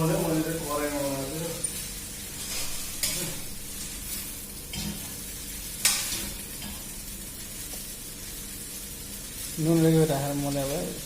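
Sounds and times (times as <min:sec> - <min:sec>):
noodles sizzling in a pan: 0:00.0 - 0:11.0
utensil striking a pan: 0:05.8 - 0:06.9.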